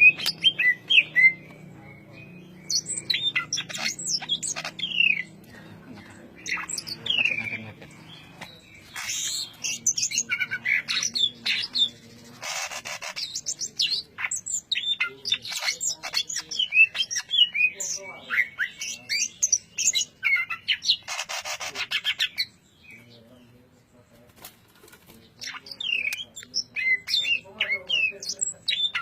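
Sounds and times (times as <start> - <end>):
songbird whistling and chirping: 0.0 - 5.4, 12.8 - 23.2, 25.4 - 29.0
bird harsh rasping phrase: 0.0 - 22.6.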